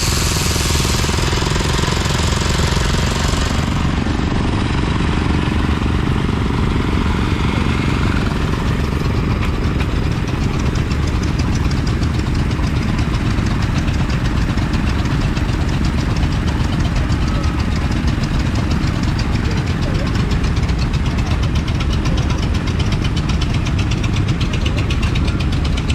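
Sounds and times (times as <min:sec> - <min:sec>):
stationary engine running: 0:00.0 - 0:25.9.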